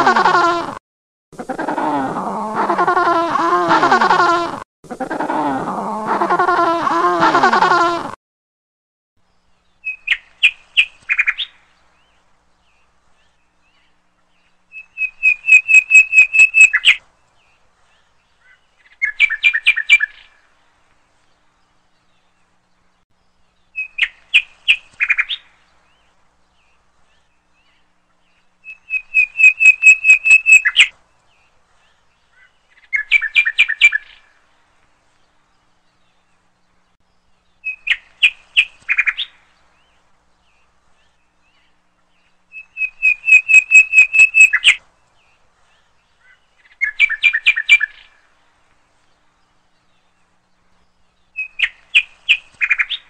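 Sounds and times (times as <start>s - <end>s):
bird calling in rapid bursts: 14.7s - 17.0s, 28.6s - 30.9s, 42.5s - 44.8s, 46.3s - 48.1s.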